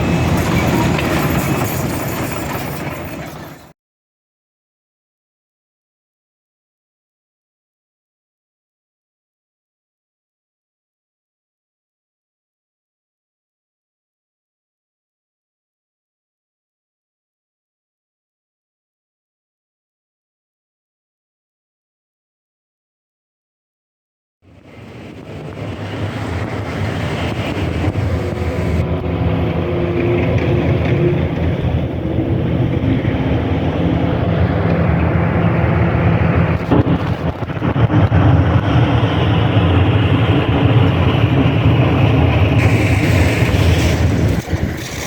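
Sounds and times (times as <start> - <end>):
diesel engine rumbling: 0.0 - 3.7, 24.5 - 45.0
wind on microphone: 24.6 - 45.0.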